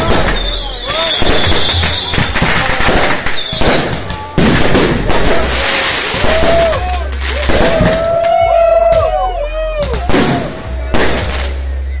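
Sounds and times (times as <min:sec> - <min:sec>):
firework whistles: 0:00.0 - 0:04.0
fireworks crackling: 0:00.0 - 0:08.3, 0:09.8 - 0:11.8.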